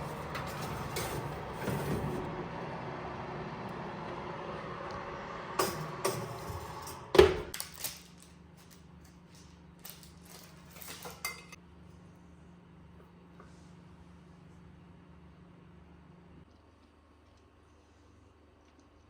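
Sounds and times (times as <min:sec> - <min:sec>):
dishes and cutlery clattering: 0:00.0 - 0:02.2, 0:05.6 - 0:07.3, 0:10.7 - 0:11.6.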